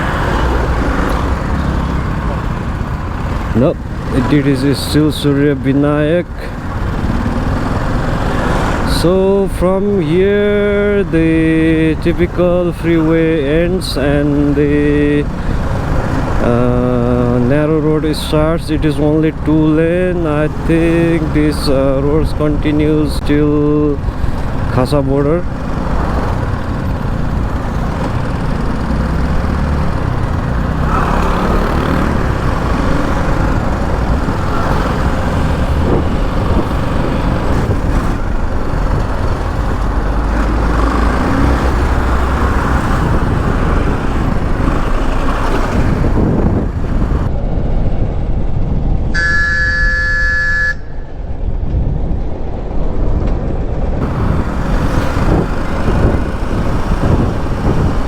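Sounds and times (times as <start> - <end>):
motorcycle engine running: 0.0 - 5.1, 6.0 - 18.4, 22.8 - 47.3, 54.0 - 58.0
wind and road noise: 0.0 - 58.0
vehicle horn: 49.2 - 51.1.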